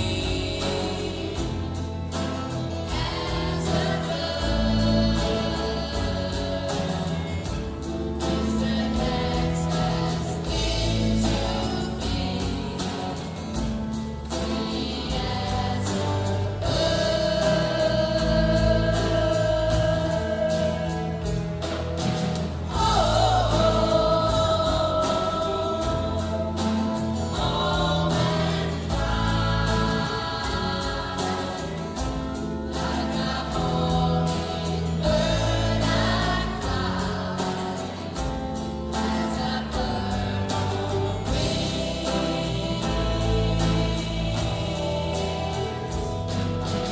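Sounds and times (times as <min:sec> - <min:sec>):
choir singing long notes: 0:02.7 - 0:07.6, 0:22.7 - 0:46.4.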